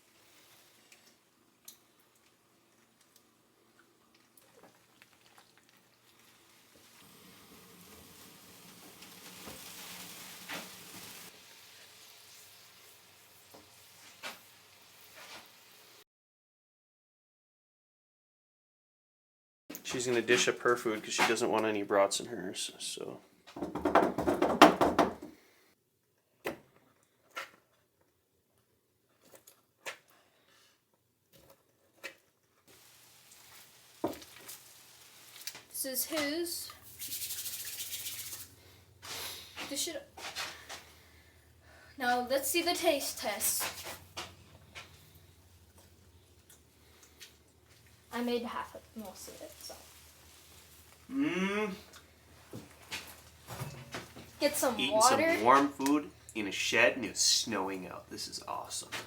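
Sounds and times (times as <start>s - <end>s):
food sizzling in a pan: 0.0s - 16.0s, 32.7s - 59.0s.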